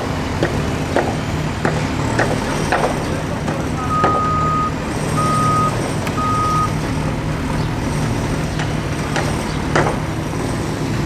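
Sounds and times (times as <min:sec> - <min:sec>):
vehicle engine running: 0:00.0 - 0:11.0
reversing alarm beeping: 0:03.8 - 0:06.8.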